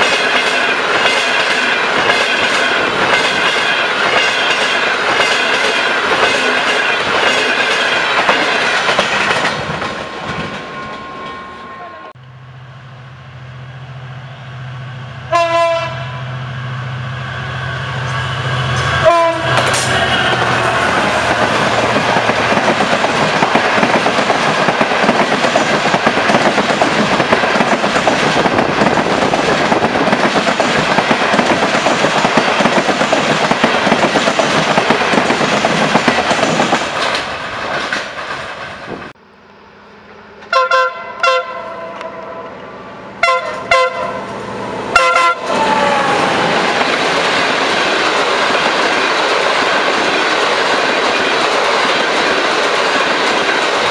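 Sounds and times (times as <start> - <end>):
wheels rushing on rail: 0.0 - 53.9
train horn blasts: 15.2 - 21.1, 40.4 - 42.6, 43.2 - 44.3, 44.9 - 46.5
short horn toots: 40.4 - 42.5.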